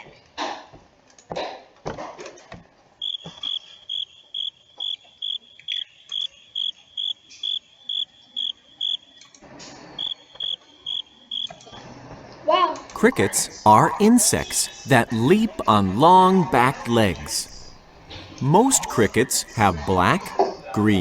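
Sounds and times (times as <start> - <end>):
cricket chirping: 3.0 - 9.2, 10.0 - 11.6.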